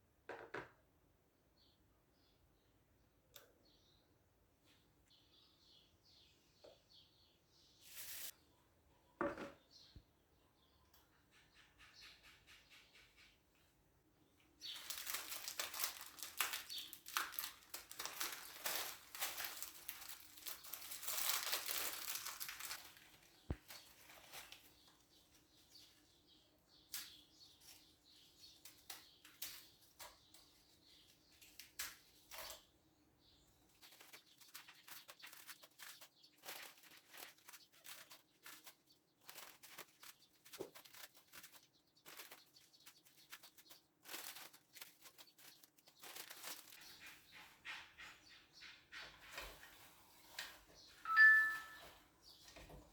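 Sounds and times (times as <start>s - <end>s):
kitchen rustling: 7.7s - 8.4s, 14.4s - 26.2s, 33.6s - 52.9s.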